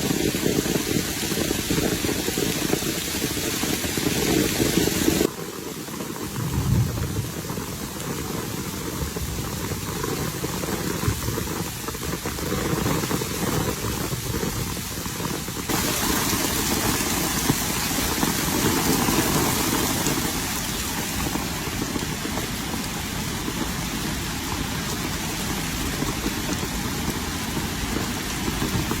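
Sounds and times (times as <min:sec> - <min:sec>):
steady rain hiss: 0:00.0 - 0:29.0
low rumble: 0:06.4 - 0:08.1.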